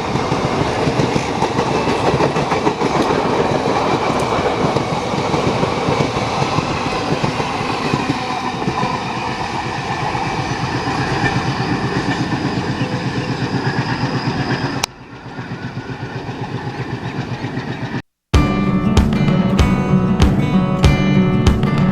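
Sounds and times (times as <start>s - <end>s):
train wheels clickety-clack: 0.0s - 18.0s.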